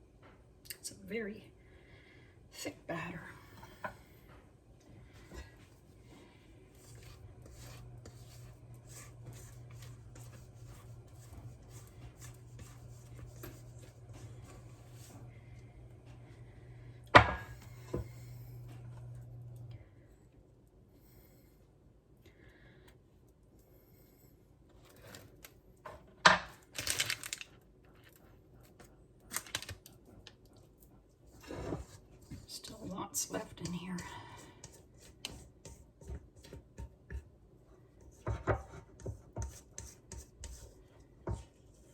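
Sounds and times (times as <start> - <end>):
steady low hum: 1.0 - 20.4
spatula scraping batter in bowl: 5.2 - 15.4, 31.3 - 37.3, 38.0 - 41.9.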